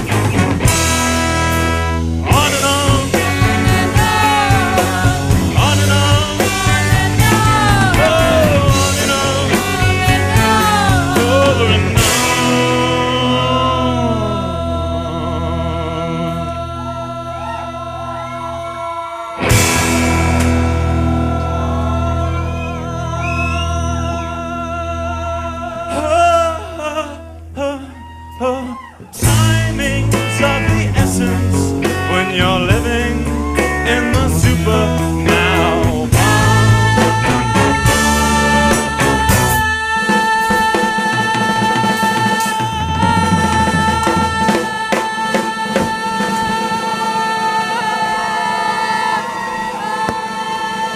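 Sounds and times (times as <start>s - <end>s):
live band music: 0.0s - 17.3s, 19.4s - 26.5s, 28.7s - 50.9s
singing voice: 0.7s - 50.9s
drum and percussion hits: 2.2s - 12.7s.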